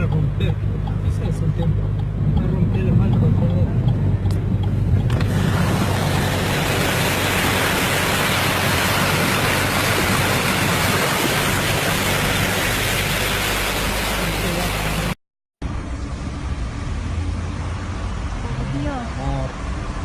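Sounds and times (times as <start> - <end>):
floodwater rushing: 5.2 - 15.2.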